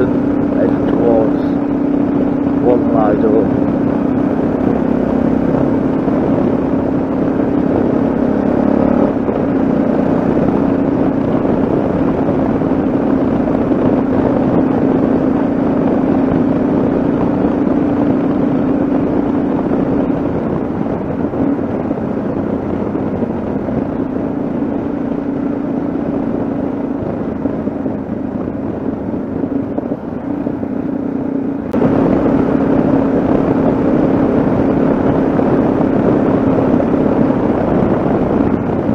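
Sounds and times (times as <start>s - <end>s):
motorcycle engine cruising: 0.0s - 38.9s
road and wind noise: 0.0s - 38.9s.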